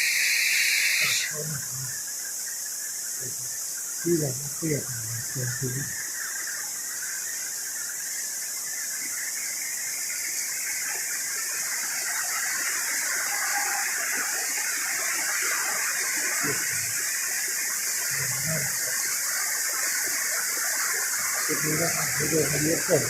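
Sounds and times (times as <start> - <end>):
heavy rain pouring: 12.7 - 23.0.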